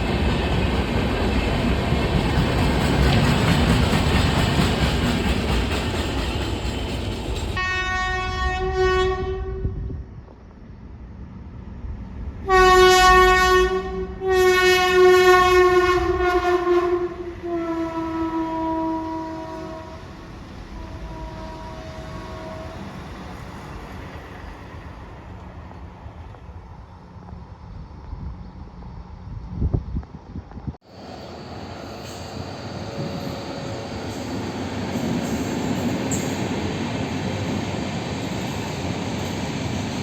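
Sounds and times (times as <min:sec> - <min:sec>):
train rumbling past: 0:00.0 - 0:40.0
locomotive horn blasts: 0:07.6 - 0:09.8, 0:12.4 - 0:20.1, 0:20.7 - 0:23.0.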